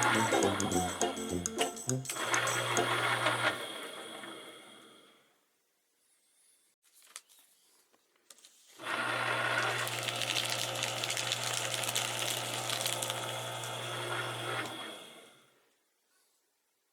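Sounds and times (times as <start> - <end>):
paper shredder humming: 0.0 - 1.5, 8.8 - 15.4.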